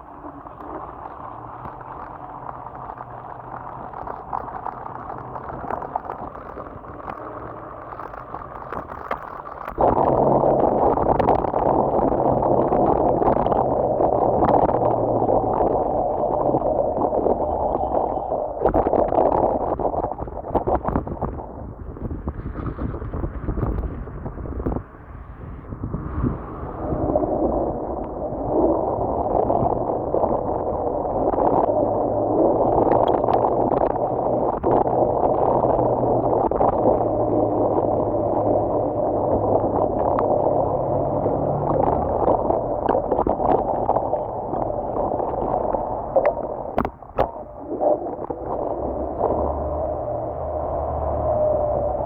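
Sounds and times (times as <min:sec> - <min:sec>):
steady rushing noise: 0:00.0 - 0:52.0.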